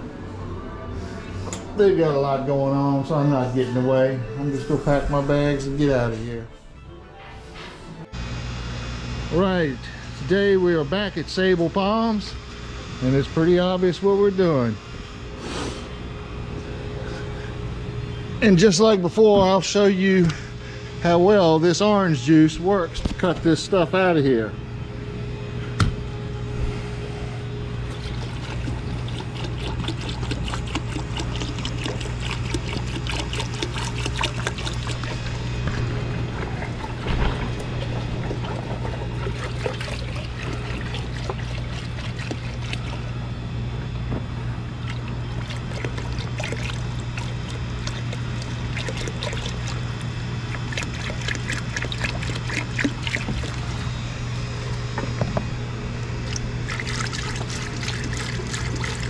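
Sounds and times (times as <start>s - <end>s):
steady low hum: 20.0s - 59.0s
liquid trickling and splashing: 27.9s - 43.1s, 44.8s - 53.8s, 56.2s - 59.0s.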